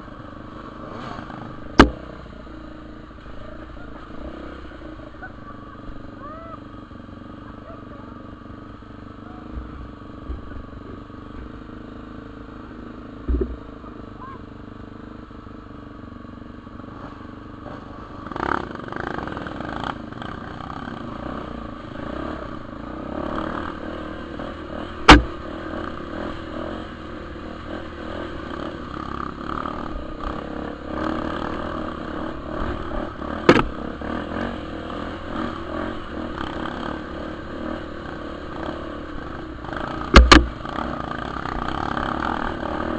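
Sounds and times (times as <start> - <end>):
dirt bike engine running: 0.0 - 42.9
sharp knocks: 1.7 - 2.0, 25.1 - 25.3, 33.4 - 33.8, 40.1 - 40.6.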